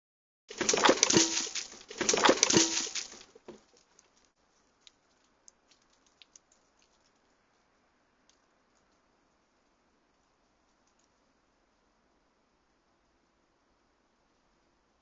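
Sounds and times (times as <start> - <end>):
animal scrabbling: 0.5 - 3.8
faint clicks: 3.8 - 9.1, 10.1 - 11.2.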